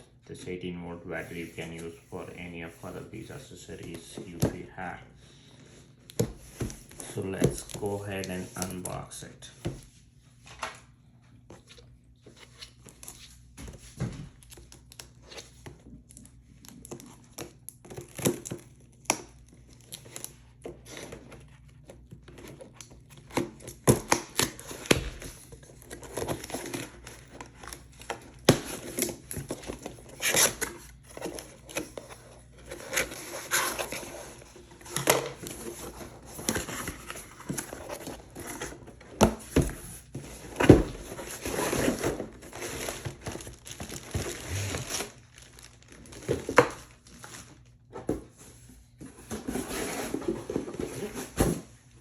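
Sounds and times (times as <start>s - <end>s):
packaging crinkling and tearing: 40.4s - 47.7s.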